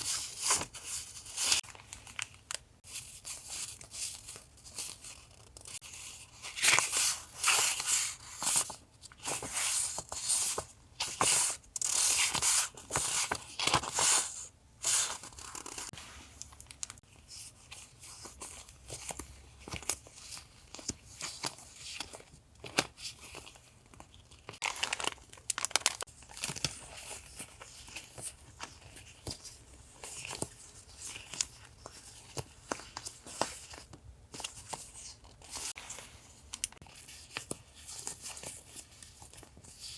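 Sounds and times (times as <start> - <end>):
packaging crinkling and rustling: 19.1 - 35.8.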